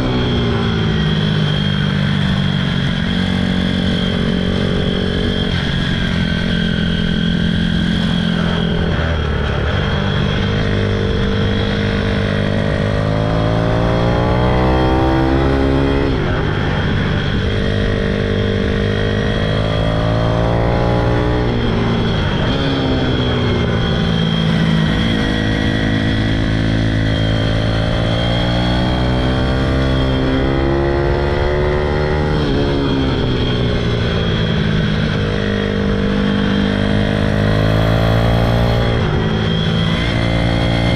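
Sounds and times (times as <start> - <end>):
pit bike engine revving: 0.0 - 23.2, 33.8 - 40.9.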